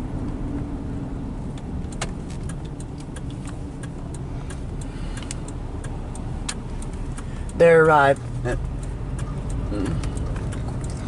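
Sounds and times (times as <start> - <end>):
car engine and road rumble: 0.0 - 11.0
turn signal clicking: 1.4 - 11.0.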